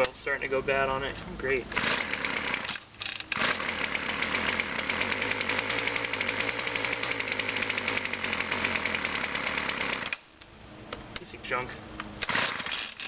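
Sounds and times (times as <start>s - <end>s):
weed whacker engine starting: 1.7s - 10.2s, 12.2s - 13.0s.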